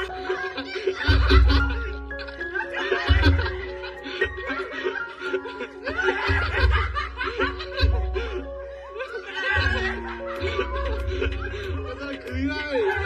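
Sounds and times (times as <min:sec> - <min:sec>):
person laughing: 0:00.0 - 0:13.0.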